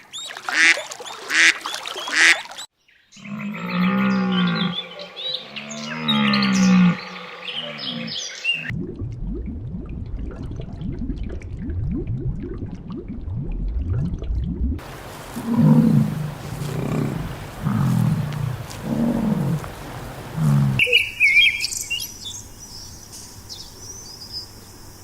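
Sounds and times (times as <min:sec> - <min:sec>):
deep low animal calls: 0:03.2 - 0:08.7, 0:14.8 - 0:21.0.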